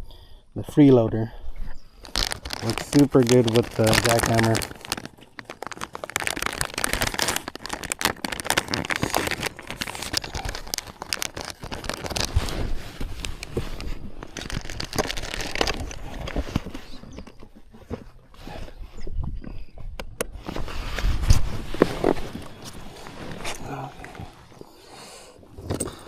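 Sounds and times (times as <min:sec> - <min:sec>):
plastic packaging crinkling: 0:02.0 - 0:17.5, 0:21.4 - 0:24.7.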